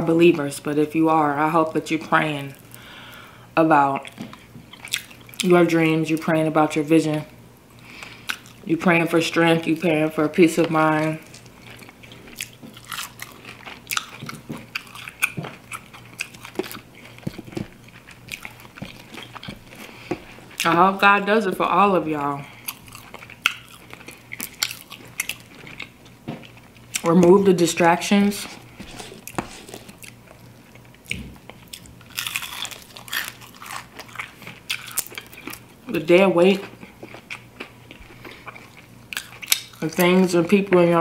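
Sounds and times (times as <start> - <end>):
crunchy chewing: 4.0 - 5.4, 10.6 - 20.7, 22.5 - 27.1, 28.4 - 35.8, 36.6 - 39.9.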